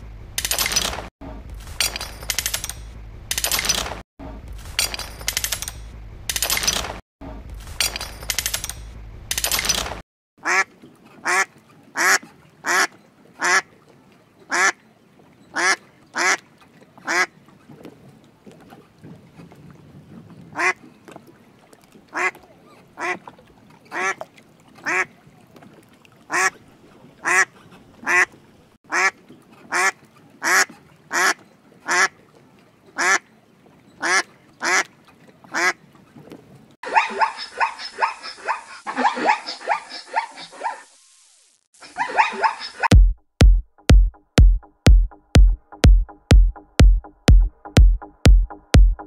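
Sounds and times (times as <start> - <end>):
ducks quacking: 10.4 - 13.7, 14.5 - 14.8, 15.5 - 17.3, 22.1 - 22.4, 23.0 - 23.3, 27.2 - 32.2, 33.0 - 33.2, 34.0 - 34.9, 36.8 - 40.8.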